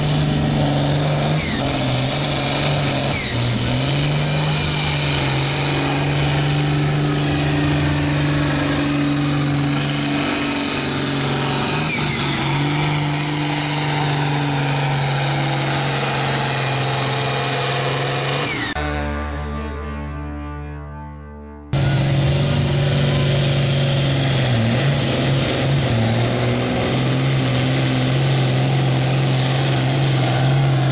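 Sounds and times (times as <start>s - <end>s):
tractor engine running hard: 0.0s - 20.1s, 21.7s - 30.9s.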